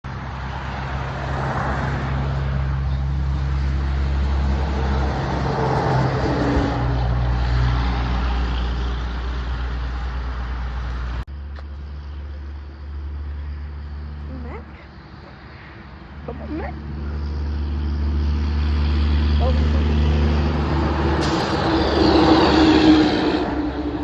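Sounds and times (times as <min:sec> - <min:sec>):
vehicles passing: 0:00.0 - 0:24.0
low engine hum: 0:00.1 - 0:24.0.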